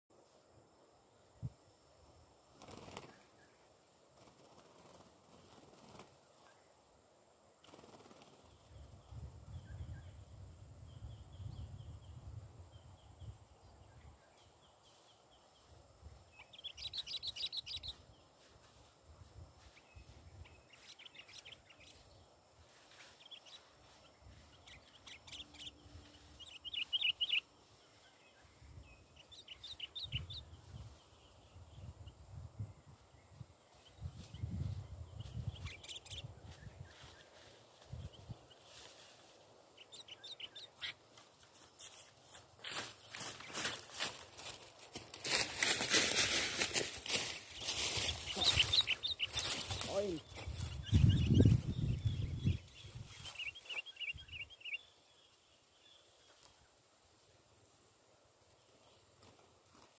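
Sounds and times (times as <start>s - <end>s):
bird chirping rapidly: 16.4s - 18.0s, 24.4s - 27.5s, 29.0s - 30.5s, 35.1s - 36.8s, 47.3s - 54.9s.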